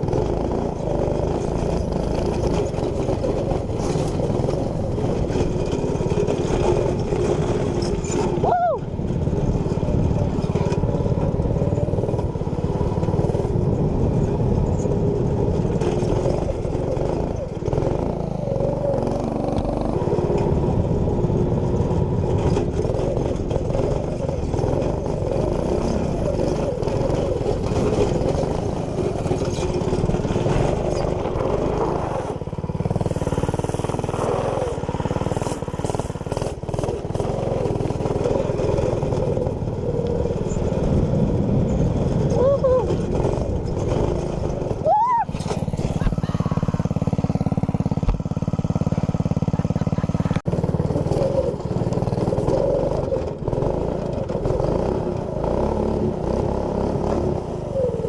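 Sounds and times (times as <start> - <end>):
small engine running under load: 0.0 - 58.0.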